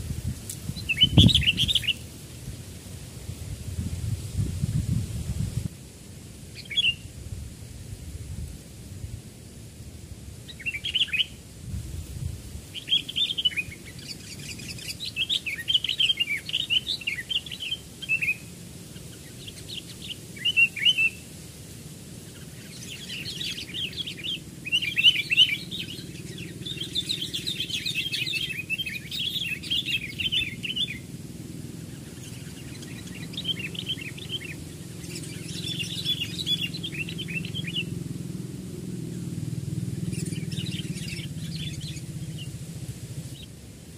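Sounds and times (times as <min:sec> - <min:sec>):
bulbuls chirping: 0:00.0 - 0:02.3, 0:06.5 - 0:07.1, 0:10.4 - 0:11.4, 0:12.6 - 0:21.4, 0:22.1 - 0:43.9
faint low rumble: 0:22.2 - 0:43.9.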